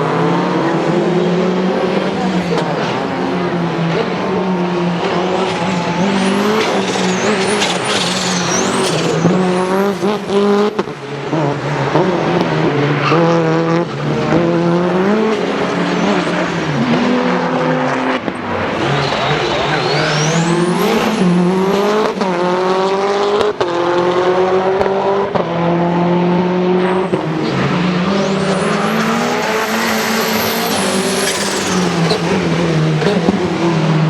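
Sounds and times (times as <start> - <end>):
rally car engine running hard: 0.0 - 34.0
high squeals: 4.9 - 10.8, 18.4 - 21.9, 28.0 - 32.6.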